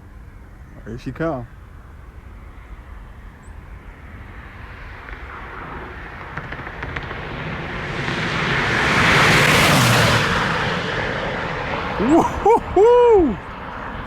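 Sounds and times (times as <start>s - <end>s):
car passing by at speed: 3.4s - 14.0s.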